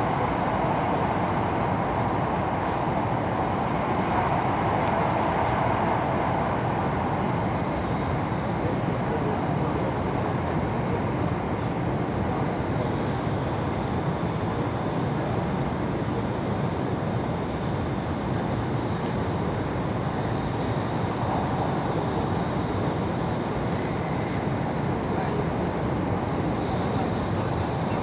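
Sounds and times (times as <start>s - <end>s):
high speed train rushing: 0.0s - 8.0s.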